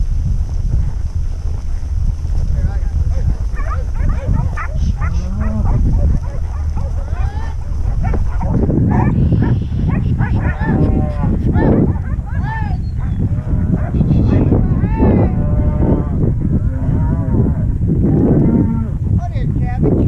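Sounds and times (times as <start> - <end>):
steady low rumble: 0.0 - 20.0
cattle mooing and bawling: 3.6 - 12.3, 13.0 - 19.0.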